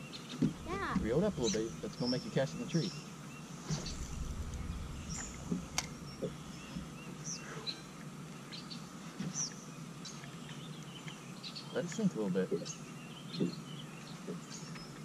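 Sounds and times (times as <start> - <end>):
birds chirping: 0.0 - 8.0
low background noise: 0.0 - 15.0.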